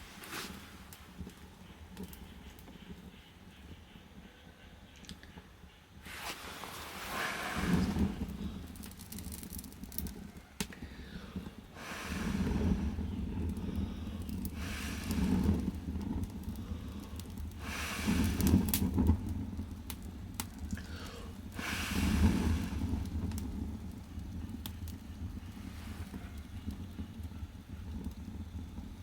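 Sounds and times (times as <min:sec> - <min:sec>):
firewood crackling and popping: 0:00.0 - 0:03.9, 0:06.1 - 0:29.0
low rushing of fire: 0:00.0 - 0:04.1, 0:06.0 - 0:29.0.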